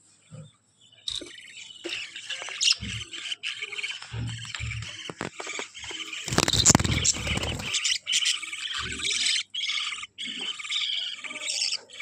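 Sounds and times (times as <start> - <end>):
budgerigars chirping: 5.0 - 11.8
loud rustling clatter: 6.3 - 7.8.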